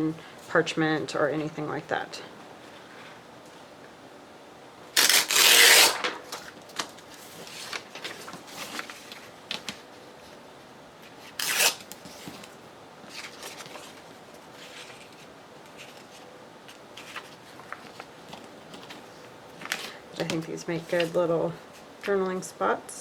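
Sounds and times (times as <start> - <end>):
paper tearing: 5.0 - 6.5, 11.3 - 12.0
paper rustling: 5.0 - 10.4, 11.0 - 22.2.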